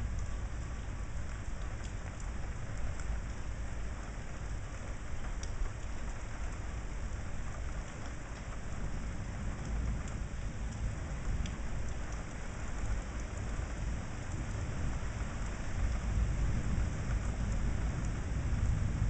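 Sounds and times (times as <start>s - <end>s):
steady rain falling: 0.0s - 19.0s
faint drop ticks: 5.3s - 5.9s
low thunder rumble: 8.7s - 19.0s.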